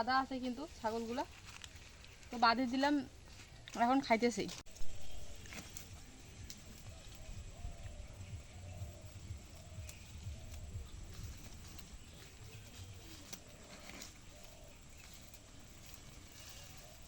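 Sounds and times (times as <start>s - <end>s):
goats munching grass and leaves: 0.8s - 2.6s, 4.7s - 17.0s
faint animal call: 16.2s - 17.0s.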